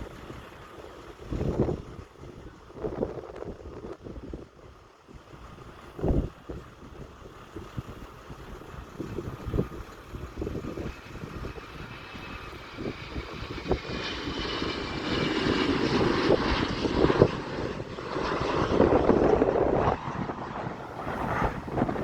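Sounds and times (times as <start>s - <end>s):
airplane engines passing: 0.0s - 22.0s
wind buffeting microphone: 0.0s - 22.0s
faint whine: 14.8s - 22.0s.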